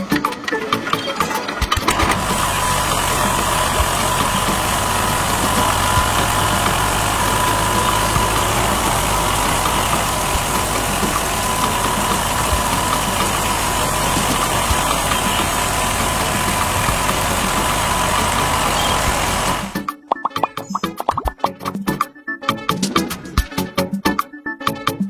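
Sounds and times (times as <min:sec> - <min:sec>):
vehicle engine idling: 0:01.9 - 0:19.8.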